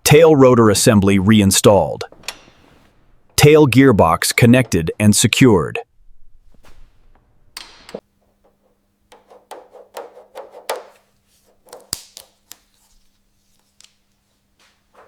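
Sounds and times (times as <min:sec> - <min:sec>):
hand tools tapping on metal: 0:07.6 - 0:12.0.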